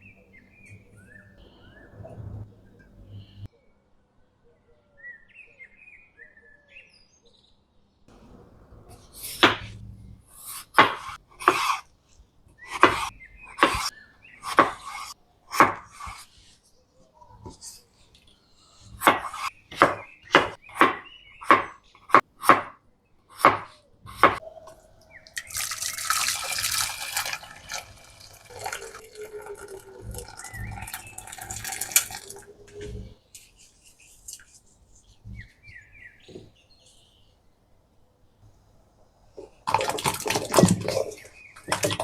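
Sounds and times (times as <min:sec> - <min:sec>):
water running from kitchen tap: 0:24.1 - 0:33.1.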